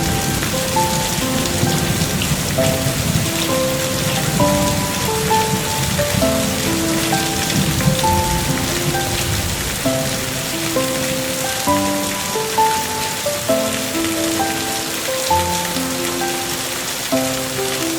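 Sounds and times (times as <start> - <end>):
rain: 0.0 - 17.9
soft slow melody: 0.0 - 17.9.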